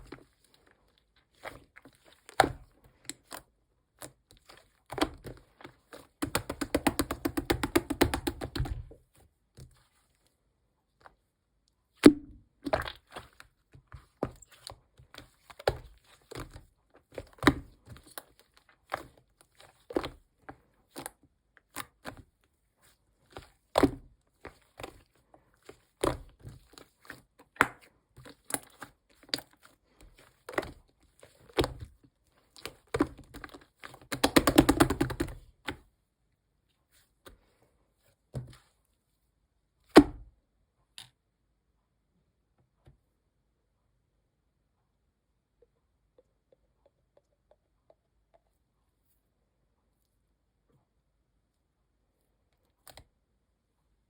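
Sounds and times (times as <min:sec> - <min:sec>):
sticky slime pops and clicks: 0:12.0 - 0:12.8.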